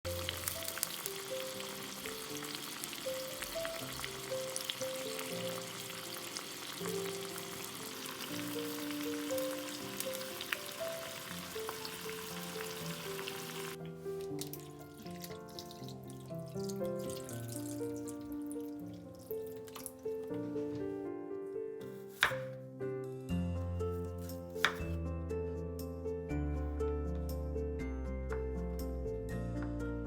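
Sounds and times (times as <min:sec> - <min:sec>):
hot oil sizzling and crackling: 0:00.1 - 0:19.8
light melody: 0:00.1 - 0:30.0.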